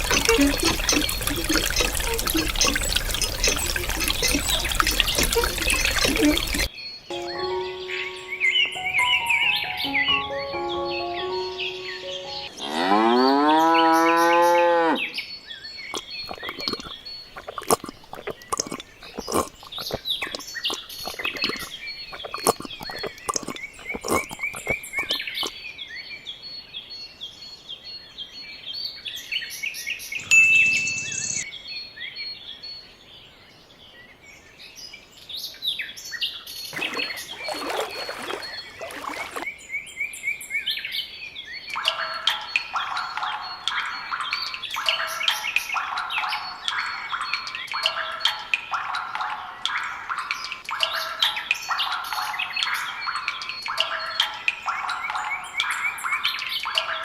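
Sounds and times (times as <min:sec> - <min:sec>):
birds chirping: 0:00.0 - 0:25.8, 0:30.0 - 0:31.6, 0:36.6 - 0:57.0
cow mooing: 0:12.6 - 0:15.1.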